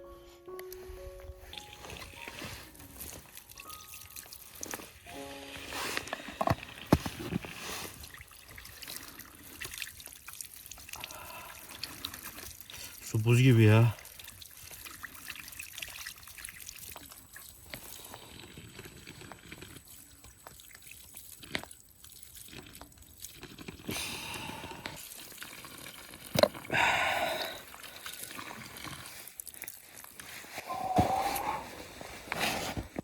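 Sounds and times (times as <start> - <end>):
water trickling and dripping: 1.4 - 5.1, 7.5 - 18.4, 19.8 - 23.4, 24.8 - 30.4.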